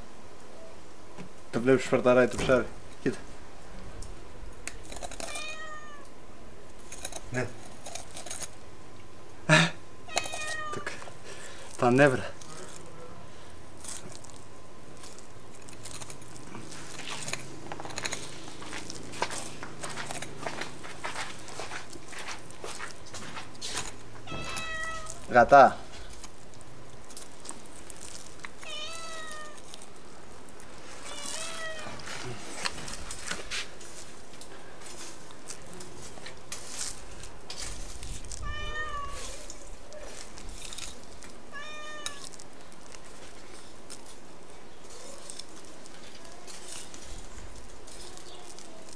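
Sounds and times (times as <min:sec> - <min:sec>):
small crunching clicks: 0:04.0 - 0:06.1, 0:06.7 - 0:08.6, 0:10.1 - 0:48.9
cat meowing: 0:05.3 - 0:06.1, 0:10.1 - 0:11.0, 0:24.2 - 0:25.2, 0:28.6 - 0:29.7, 0:31.1 - 0:32.0, 0:38.4 - 0:39.6, 0:41.5 - 0:42.3.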